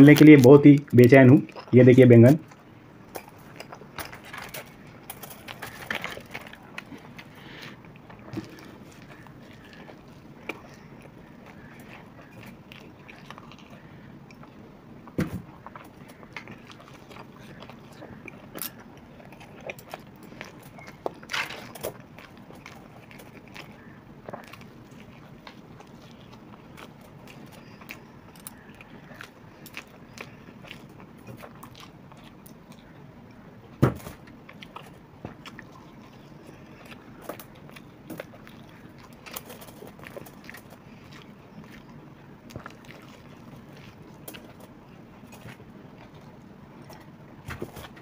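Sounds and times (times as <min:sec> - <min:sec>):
chewing crunchy fried food: 0:00.0 - 0:48.0
small clicks and crackles: 0:34.6 - 0:47.1.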